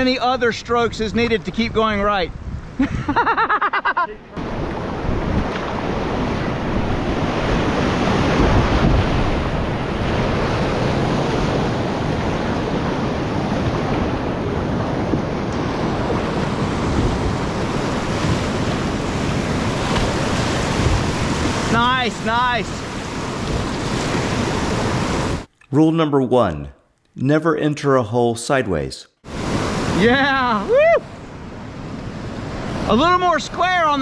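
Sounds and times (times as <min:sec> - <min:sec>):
wind buffeting microphone: 0:00.8 - 0:03.1, 0:04.4 - 0:21.8.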